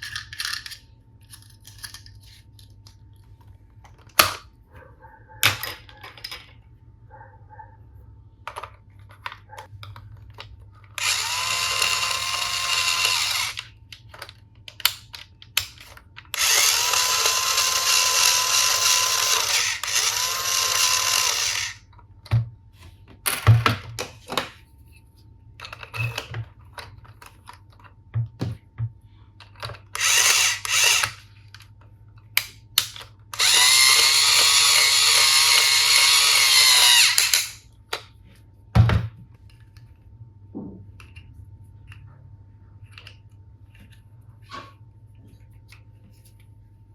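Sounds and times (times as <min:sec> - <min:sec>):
toy screwdriver motor whirring: 0:11.0 - 0:13.8, 0:15.7 - 0:21.9, 0:29.9 - 0:31.3, 0:32.9 - 0:37.6.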